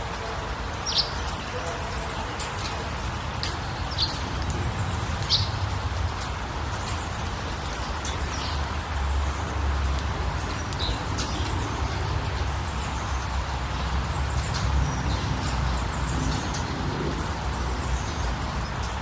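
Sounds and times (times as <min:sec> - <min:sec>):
steady low rumble: 0:03.0 - 0:19.0.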